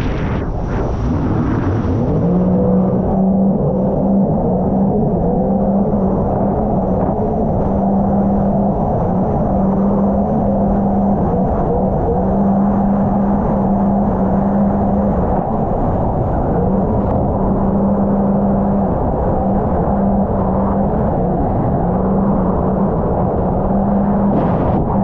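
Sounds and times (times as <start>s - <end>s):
wind and water rushing: 0.0s - 3.4s, 24.0s - 25.0s
watercraft engine drone: 0.0s - 25.0s.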